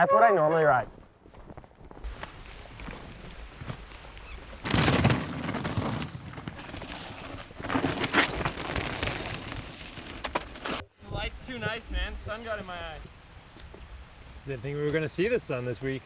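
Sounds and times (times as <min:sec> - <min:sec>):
bike tyres on dirt: 0:00.1 - 0:16.0
bike chain and frame rattling: 0:04.6 - 0:10.8.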